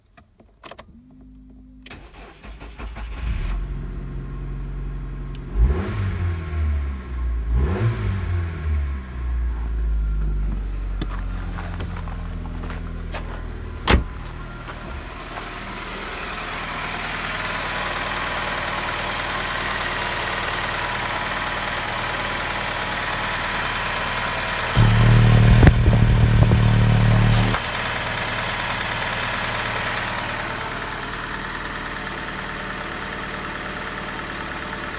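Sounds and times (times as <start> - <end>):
car engine idling: 8.4 - 34.9
deep steady hum: 24.8 - 27.6.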